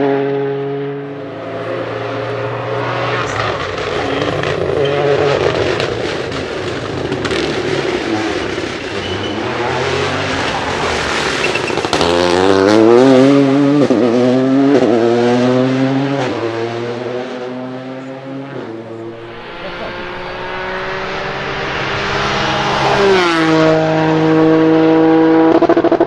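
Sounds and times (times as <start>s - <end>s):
rally car engine accelerating: 0.0s - 26.0s
engine rumble with sharp crackles: 2.5s - 12.6s.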